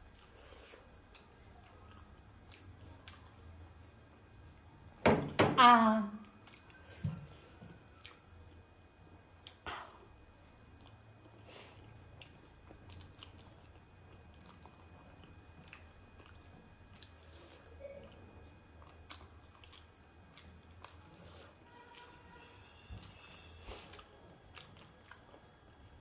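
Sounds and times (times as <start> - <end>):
chewing wet mouth sounds: 0.0 - 4.1, 12.1 - 22.1, 23.0 - 25.6
low steady hum: 0.0 - 26.0.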